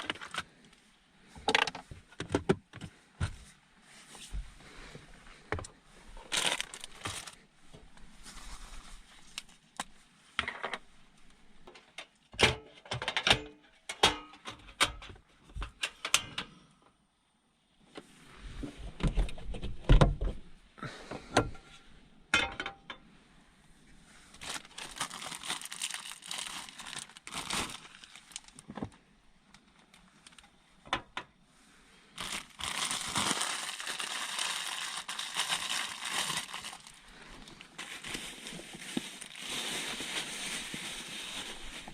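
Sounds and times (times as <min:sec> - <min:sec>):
packaging crinkling and clicks: 0:06.3 - 0:07.4, 0:24.4 - 0:28.7, 0:32.2 - 0:41.9.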